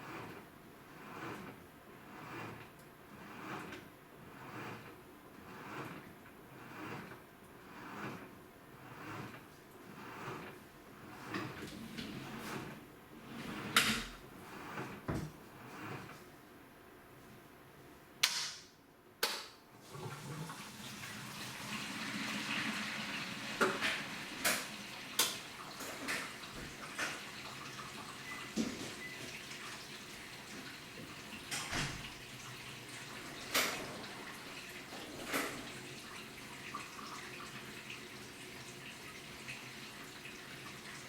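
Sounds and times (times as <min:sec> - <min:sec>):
washing machine water sloshing: 0:19.8 - 0:41.0.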